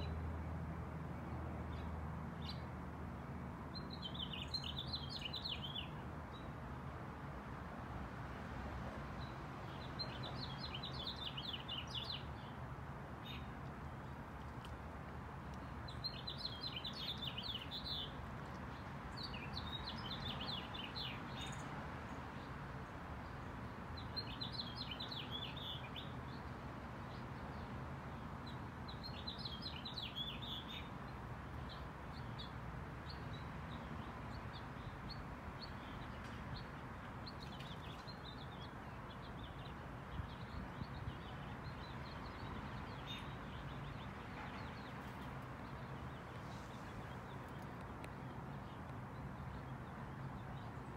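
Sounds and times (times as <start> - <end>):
small songbird singing: 3.7 - 6.5, 9.2 - 12.6, 15.6 - 22.6, 23.2 - 26.5, 28.4 - 50.9.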